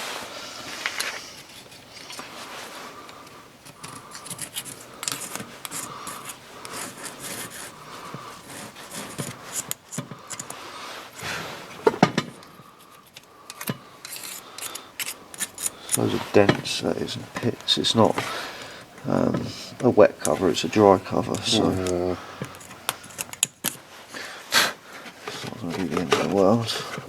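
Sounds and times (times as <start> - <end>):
parts clicking and knocking: 3.0 - 7.5, 8.1 - 23.8
metal parts rubbing and scraping: 3.6 - 11.9, 12.7 - 18.4, 19.0 - 23.9.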